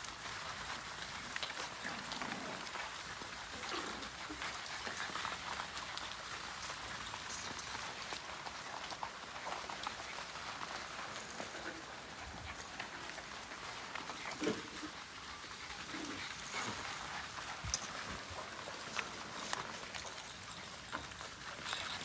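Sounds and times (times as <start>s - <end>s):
paws clicking on floor: 0.0s - 22.0s.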